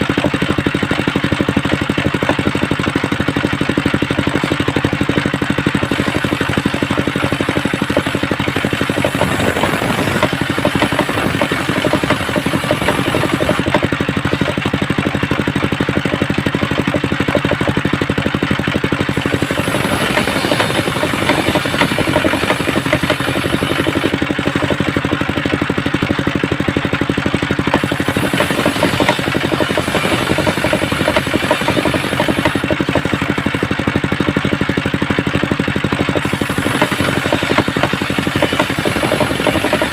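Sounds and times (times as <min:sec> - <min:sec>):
saw engine running: 0:00.0 - 0:39.9
saw blade ripping wood: 0:19.1 - 0:25.0, 0:27.5 - 0:33.8, 0:36.2 - 0:39.9.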